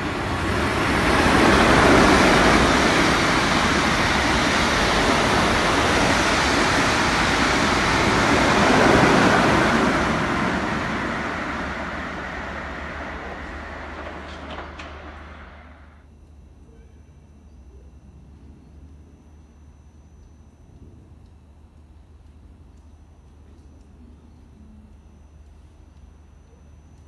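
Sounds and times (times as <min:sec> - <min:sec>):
train wheels rushing on rails: 0:00.0 - 0:16.0.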